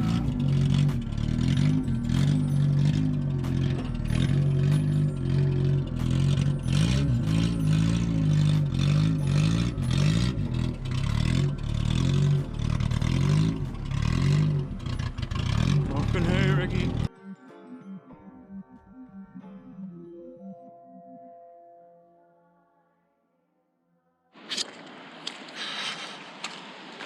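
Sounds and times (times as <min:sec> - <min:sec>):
car engine revving under load: 0:00.0 - 0:17.1
clatter and scraping: 0:00.0 - 0:17.1.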